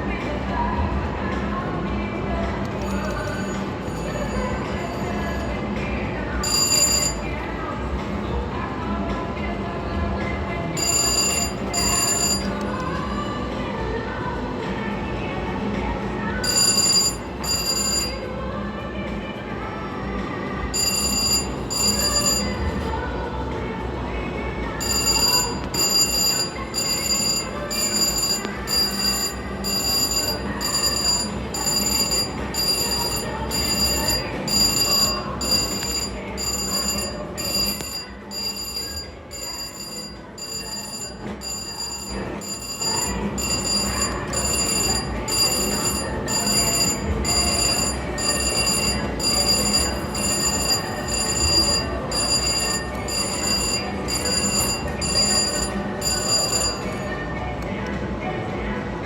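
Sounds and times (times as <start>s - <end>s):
casino background noise: 0.0s - 59.0s
slot machine bell chime: 2.8s - 5.6s, 6.4s - 7.4s, 10.7s - 13.3s, 16.4s - 18.4s, 20.7s - 23.0s, 24.8s - 57.3s.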